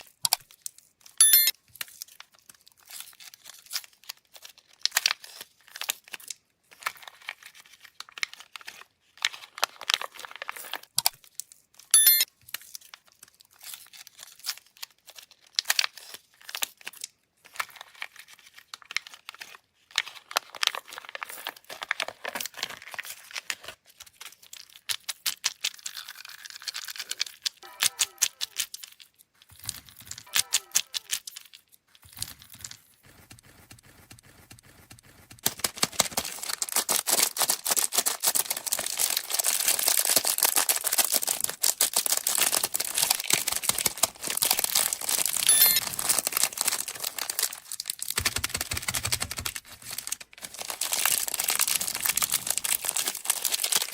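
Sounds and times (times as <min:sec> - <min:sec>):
candy wrappers crinkling and tearing: 0:00.0 - 0:33.0, 0:35.4 - 0:53.9
brief high squeak: 0:12.0 - 0:12.2, 0:45.5 - 0:45.8.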